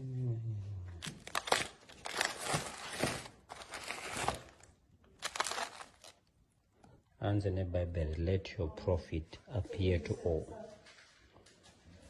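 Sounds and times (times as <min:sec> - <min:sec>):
packaging crinkling: 0:01.0 - 0:06.4.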